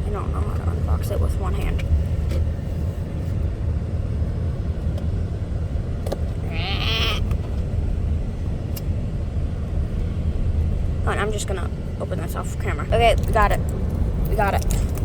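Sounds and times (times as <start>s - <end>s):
low rumble: 0.0s - 15.0s
child squealing: 6.4s - 7.3s.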